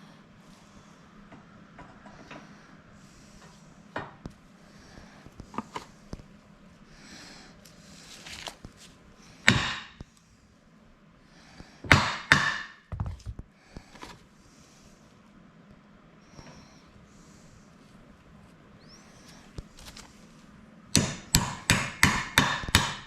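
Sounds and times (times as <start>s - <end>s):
hard objects knocking and clanking: 12.9s - 13.4s.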